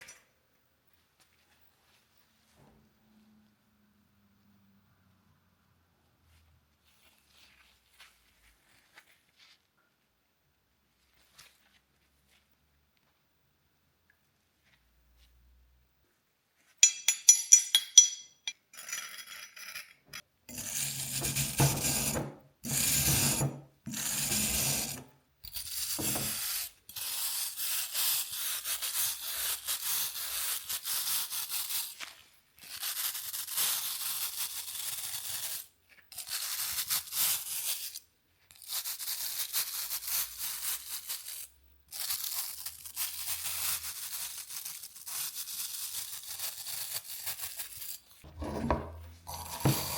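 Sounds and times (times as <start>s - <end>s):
metallic clinks: 16.8s - 20.0s.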